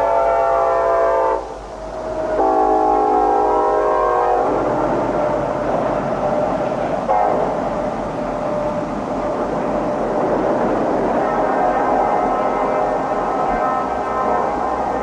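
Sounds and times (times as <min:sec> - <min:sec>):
locomotive air horn: 0:00.0 - 0:04.6, 0:07.0 - 0:08.6, 0:11.2 - 0:15.0
freight train rumbling past: 0:00.0 - 0:15.0.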